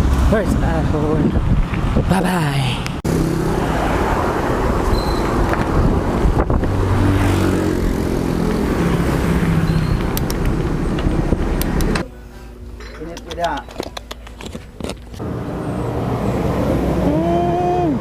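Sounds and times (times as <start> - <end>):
road noise rushing: 0.0 - 2.1, 2.8 - 12.0, 15.2 - 18.0
vehicle engines running: 0.0 - 18.0.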